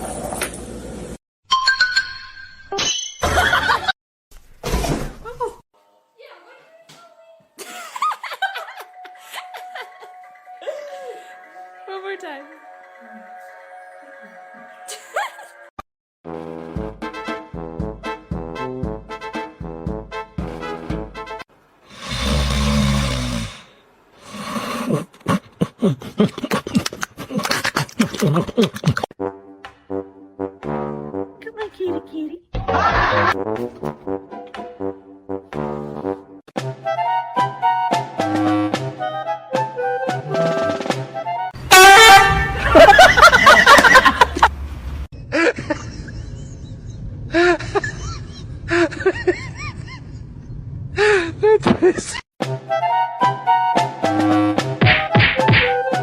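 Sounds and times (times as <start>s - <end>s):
animal growling: 21.9s - 25.6s.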